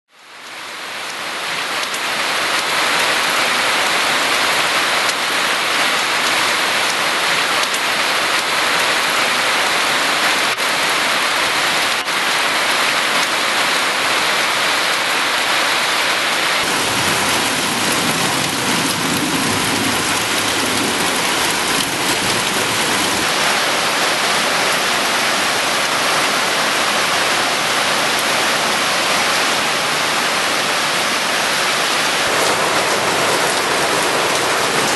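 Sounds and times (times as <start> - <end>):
heavy rain pouring: 0.1 - 34.9
deep rushing water: 1.0 - 34.9.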